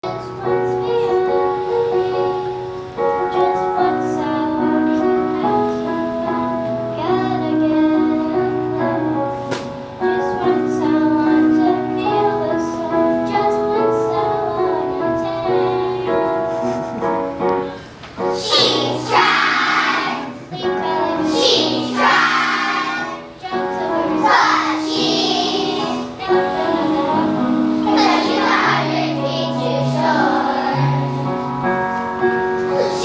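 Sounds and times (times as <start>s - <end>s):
voices singing with instruments: 18.3s - 31.3s.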